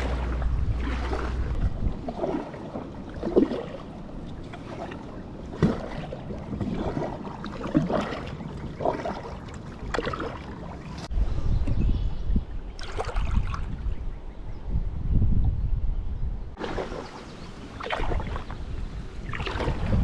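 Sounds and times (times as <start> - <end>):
kayak paddle splashing in water: 0.0 - 11.1, 16.6 - 20.0.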